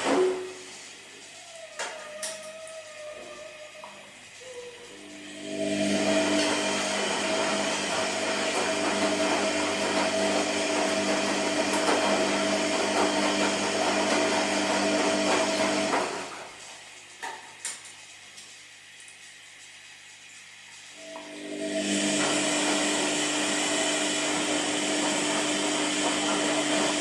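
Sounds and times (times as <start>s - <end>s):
washing machine motor whirring: 0.0s - 27.0s.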